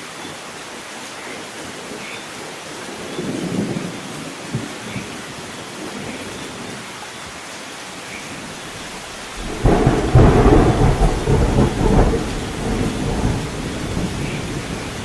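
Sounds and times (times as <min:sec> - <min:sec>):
heavy rain hissing: 0:00.0 - 0:15.0
thunder rumbling: 0:08.9 - 0:15.0.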